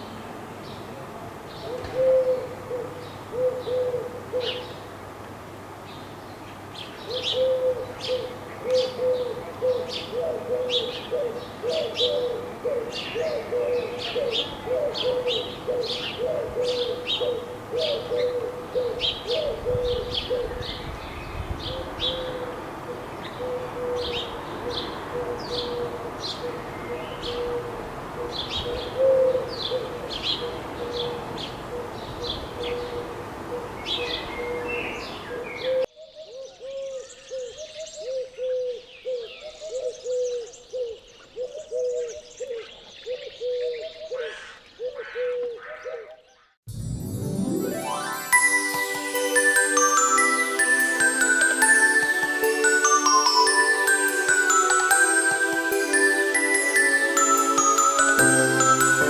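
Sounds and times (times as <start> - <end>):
dove cooing: 1.6 - 4.7, 7.1 - 20.7, 21.7 - 32.0
songbirds chirping: 5.8 - 46.6.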